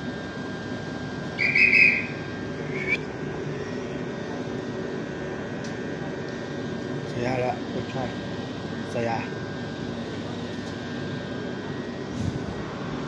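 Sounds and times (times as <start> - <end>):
electric train whine: 0.0 - 13.0
high-pitched whistle tone: 1.4 - 3.0.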